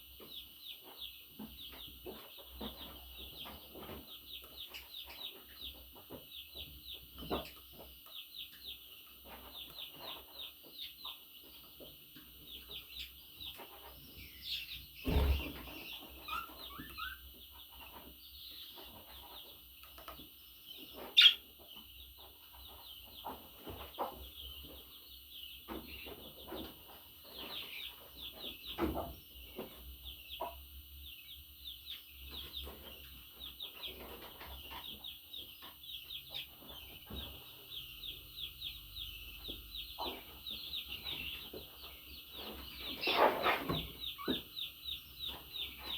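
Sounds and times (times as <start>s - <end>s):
budgerigars chattering: 20.9s - 21.4s.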